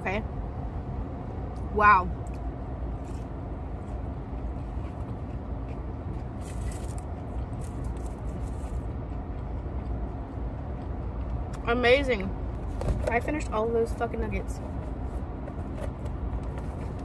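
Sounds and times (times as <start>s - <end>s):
close-up chewing: 3.0s - 11.6s.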